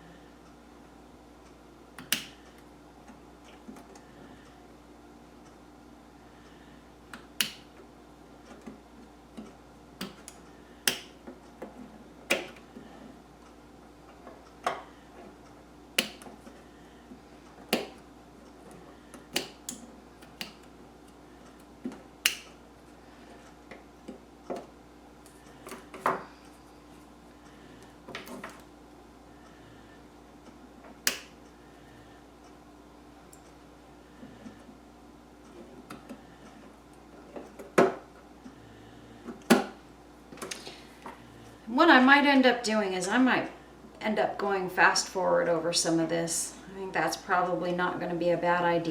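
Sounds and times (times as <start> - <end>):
sharp clicks and taps of hand work: 2.0 - 2.4, 7.1 - 7.7, 9.4 - 11.7, 16.0 - 16.3, 17.7 - 18.0, 19.1 - 20.7, 21.6 - 22.6, 31.0 - 31.4.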